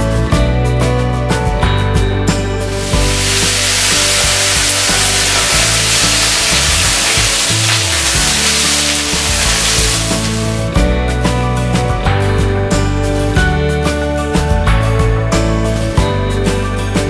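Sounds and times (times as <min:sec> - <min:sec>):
background music: 0:00.0 - 0:17.0
vegetables sizzling in hot oil: 0:02.7 - 0:10.7.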